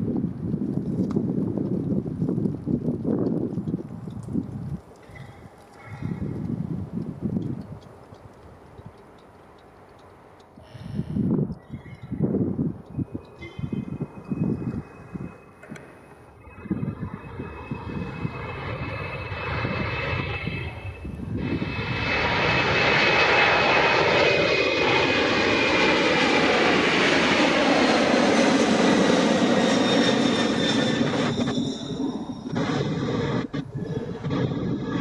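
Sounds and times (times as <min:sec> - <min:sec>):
jet engines whining: 0:12.8 - 0:35.0.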